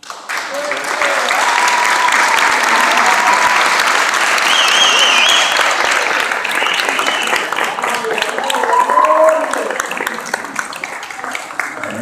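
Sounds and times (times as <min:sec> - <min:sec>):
audience applauding: 0:00.0 - 0:12.0
high wavering whistle: 0:04.4 - 0:05.6.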